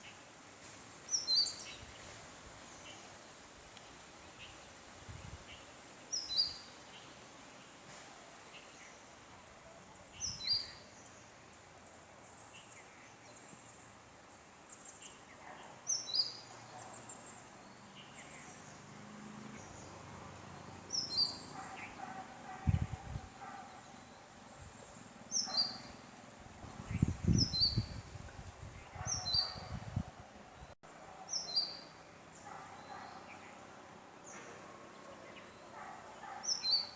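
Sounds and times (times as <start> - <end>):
faint bird chirps: 28.9 - 29.9.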